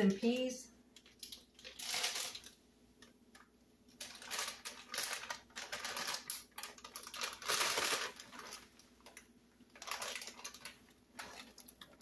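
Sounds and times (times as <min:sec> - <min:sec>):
frozen peas rattling in skillet: 0:01.2 - 0:02.6, 0:04.0 - 0:12.0.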